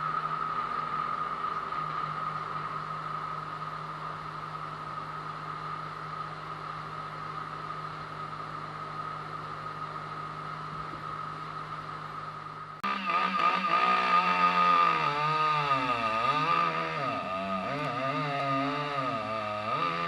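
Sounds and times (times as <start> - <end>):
steady high whine: 0.0 - 20.0
machine engine humming: 12.8 - 20.0.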